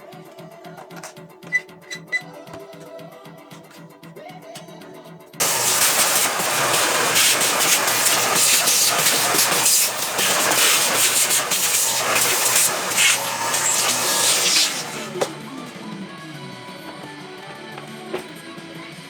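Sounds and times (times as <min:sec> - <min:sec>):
rotary tool grinding plastic: 0:05.4 - 0:18.4.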